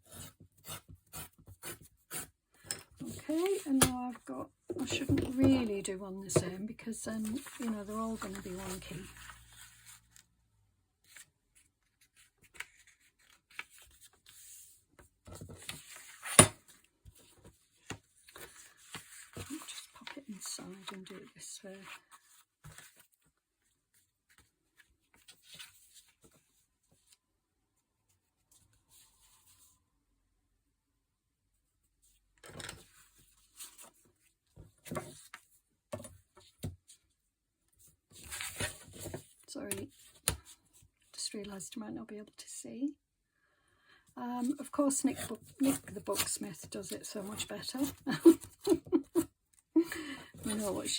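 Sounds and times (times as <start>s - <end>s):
paper rustling and ticking: 7.1s - 10.2s
paper rustling: 7.1s - 10.3s, 11.0s - 14.7s, 15.3s - 23.3s, 49.9s - 50.9s.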